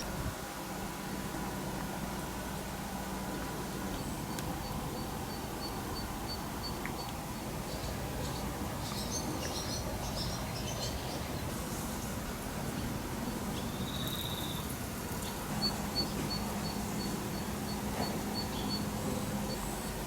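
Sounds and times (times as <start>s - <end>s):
pulsing insect trill: 4.0s - 7.9s, 15.6s - 19.7s
birds chirping: 4.0s - 20.0s.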